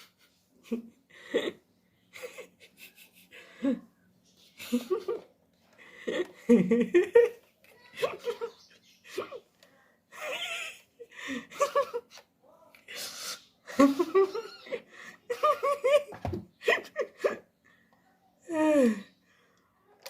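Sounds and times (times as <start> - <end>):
people laughing: 0.6 - 3.9, 4.6 - 9.4, 10.1 - 12.3, 13.7 - 17.5.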